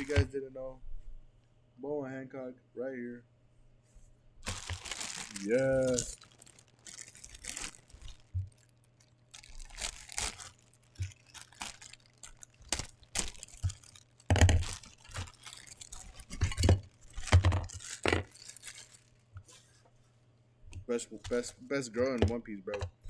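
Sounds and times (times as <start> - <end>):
plastic and cardboard tearing: 0.0 - 0.3, 4.4 - 19.6, 21.1 - 22.4.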